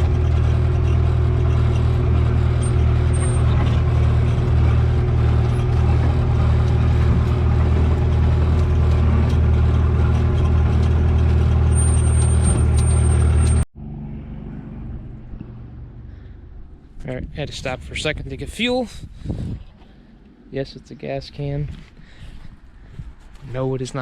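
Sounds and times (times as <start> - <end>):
mini excavator diesel engine running: 0.0 - 17.0.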